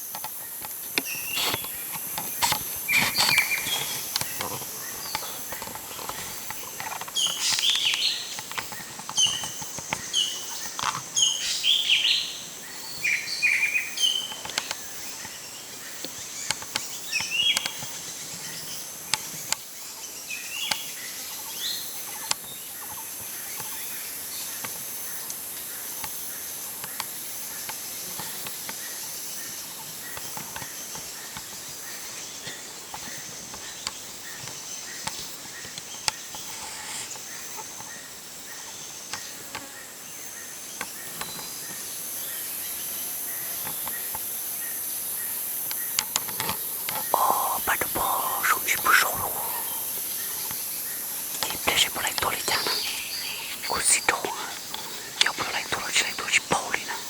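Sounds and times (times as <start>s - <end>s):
high insect hum: 0.1s - 57.0s
birds chirping: 46.9s - 57.0s.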